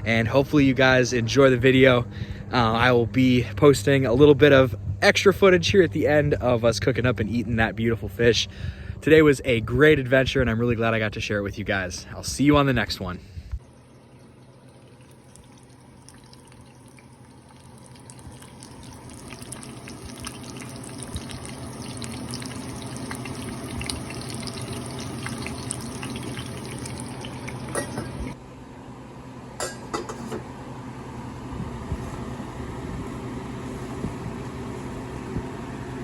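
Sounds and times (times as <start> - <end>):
running water: 13.6 - 28.4.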